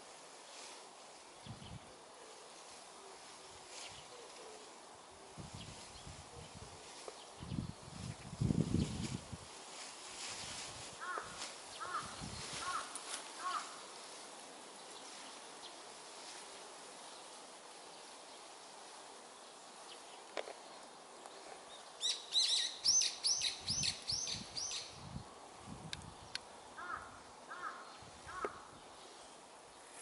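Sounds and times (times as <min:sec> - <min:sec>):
wild birds singing: 0:11.0 - 0:16.1, 0:16.8 - 0:30.0.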